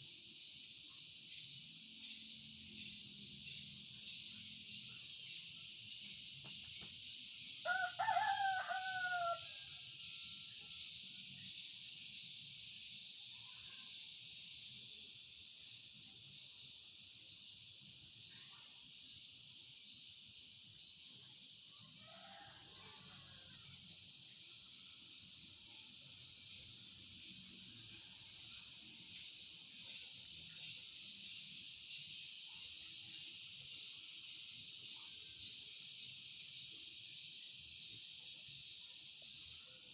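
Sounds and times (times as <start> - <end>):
steady high hiss: 0.0 - 39.9
rooster crowing: 7.6 - 10.4, 21.8 - 23.7.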